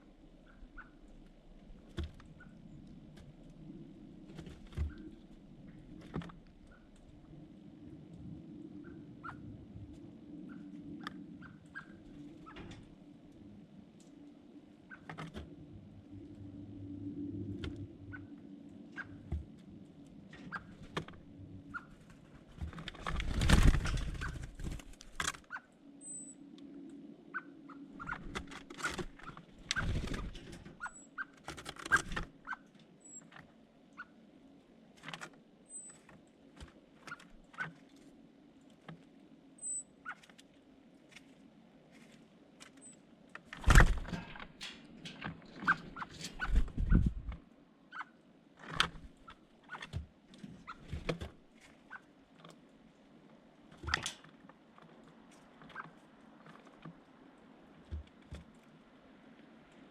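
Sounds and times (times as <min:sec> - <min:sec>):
birds pecking and scuffling: 0:00.0 - 0:59.9
wings fluttering: 0:00.4 - 0:07.2, 0:17.2 - 0:25.7, 0:27.3 - 0:34.1, 0:35.0 - 0:38.1, 0:43.4 - 0:52.5.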